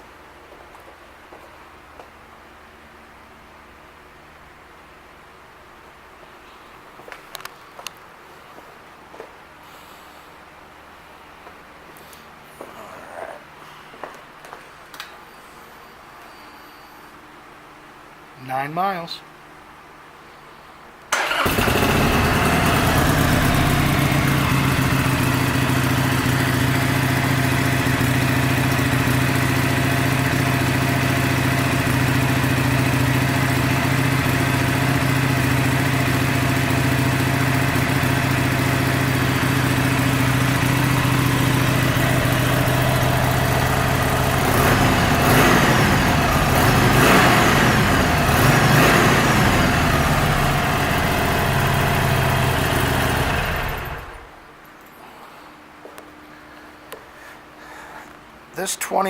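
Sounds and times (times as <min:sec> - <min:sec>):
motorcycle engine idling and revving: 0:21.2 - 0:54.3.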